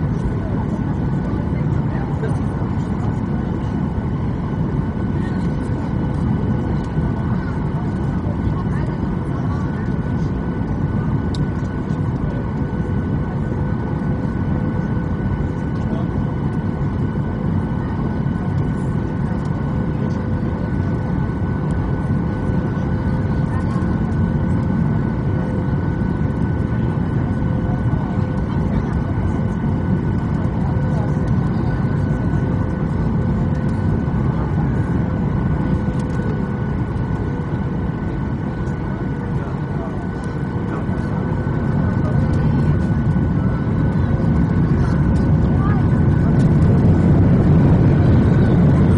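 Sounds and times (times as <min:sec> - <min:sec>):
airplane cabin drone: 0:00.0 - 0:48.9
faint steady hums: 0:00.0 - 0:48.9.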